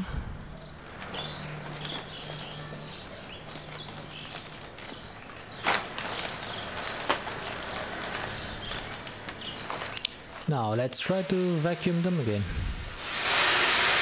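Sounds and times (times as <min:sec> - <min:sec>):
steady low hum: 0:00.0 - 0:01.4, 0:11.1 - 0:13.1.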